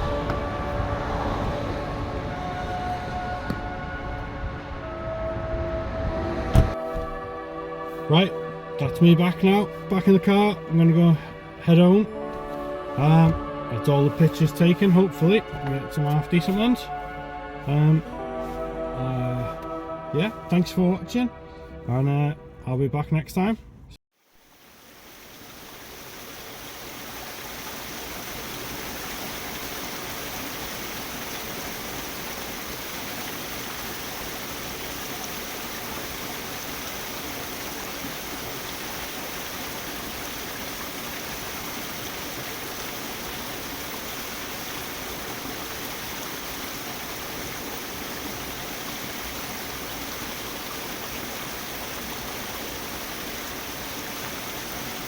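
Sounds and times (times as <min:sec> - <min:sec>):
waterfall rushing water: 0:24.4 - 0:55.0.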